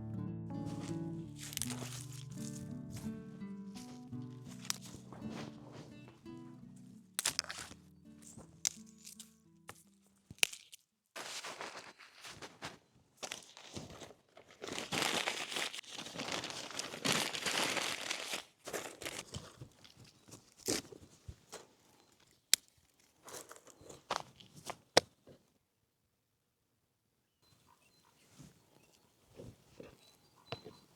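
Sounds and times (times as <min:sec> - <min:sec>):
wrapping material crinkling: 0:00.7 - 0:24.8.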